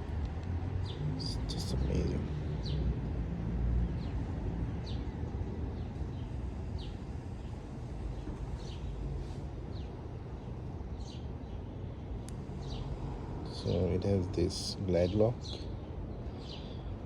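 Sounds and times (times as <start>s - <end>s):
birds chirping: 9.7s - 17.0s.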